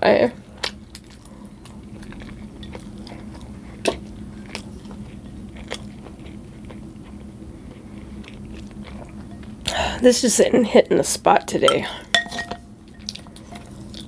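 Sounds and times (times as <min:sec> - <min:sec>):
person chewing food: 0:00.6 - 0:09.8, 0:12.9 - 0:14.0.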